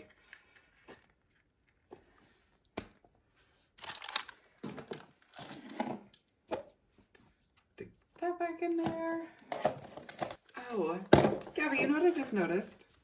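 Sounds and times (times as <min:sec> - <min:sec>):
plastic packaging crinkling: 0:03.8 - 0:05.5.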